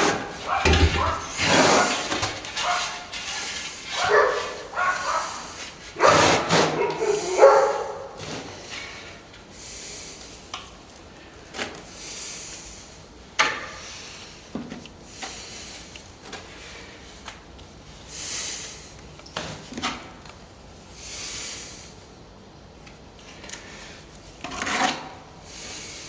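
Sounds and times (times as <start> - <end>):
pitched yelping calls: 0.1 - 3.0, 3.9 - 8.1.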